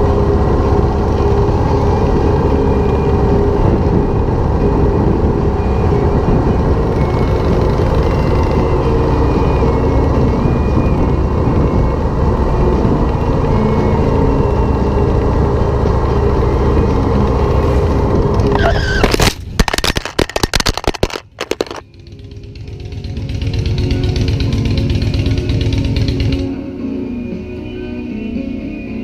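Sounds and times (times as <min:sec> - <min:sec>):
motorcycle engine: 0:00.0 - 0:26.6
wind noise: 0:02.1 - 0:15.5
tyre screech: 0:18.4 - 0:20.6
crash knocks and clatters: 0:19.0 - 0:21.8.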